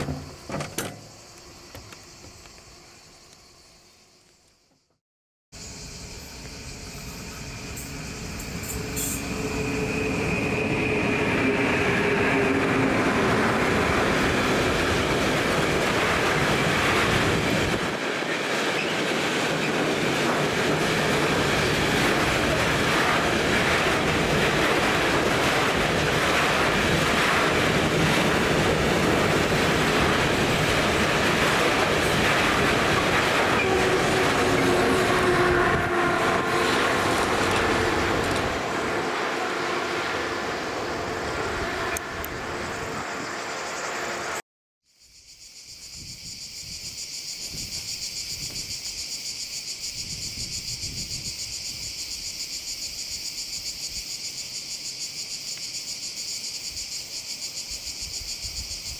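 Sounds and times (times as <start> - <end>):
wheel clatter: 0.0 - 1.2
locomotive whine: 0.0 - 3.5, 5.6 - 44.4
wagons rumbling past: 8.8 - 44.3.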